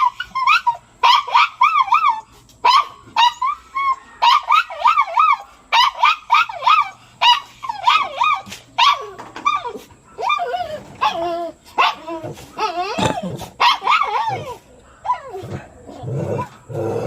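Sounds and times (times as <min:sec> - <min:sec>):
dog whining and yelping: 0:00.0 - 0:16.6.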